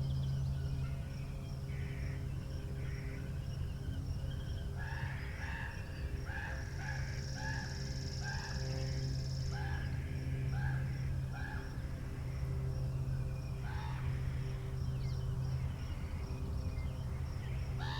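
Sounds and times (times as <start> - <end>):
steady low hum: 0.0 - 17.9
birds calling: 13.6 - 17.9.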